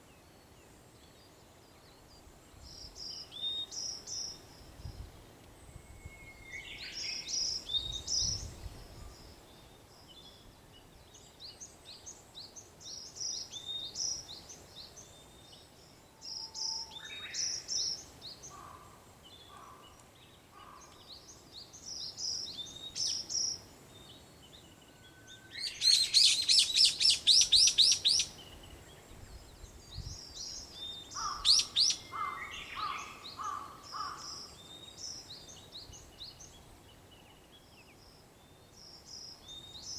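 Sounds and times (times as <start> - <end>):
birds chirping: 19.5 - 36.6
bird trilling: 25.6 - 28.3, 31.2 - 34.2.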